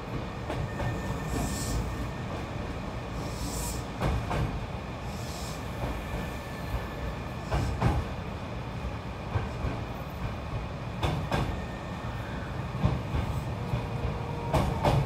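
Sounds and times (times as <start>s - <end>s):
electric train rumble: 0.0s - 15.0s
high wheel squeal: 0.6s - 2.2s.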